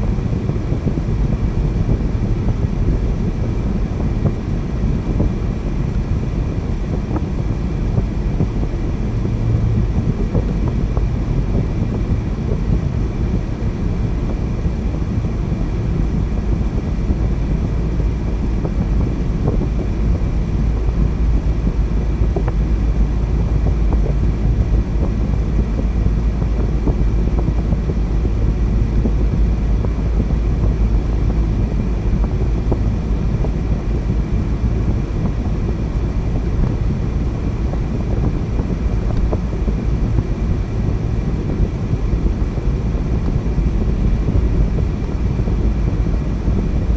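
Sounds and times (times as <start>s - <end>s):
car driving rumble: 0.0s - 46.9s.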